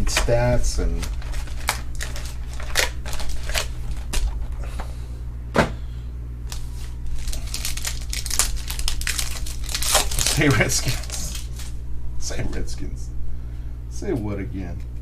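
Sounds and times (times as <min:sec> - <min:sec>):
low hum: 0:00.0 - 0:15.0
cards clicking and rustling: 0:00.9 - 0:04.3, 0:06.5 - 0:11.7.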